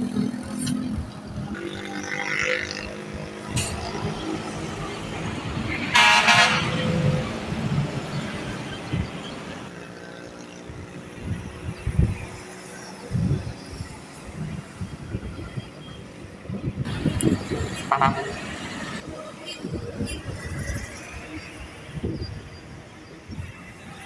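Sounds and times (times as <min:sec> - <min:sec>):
truck engines running: 0:00.0 - 0:24.0
horn blast: 0:05.8 - 0:07.1.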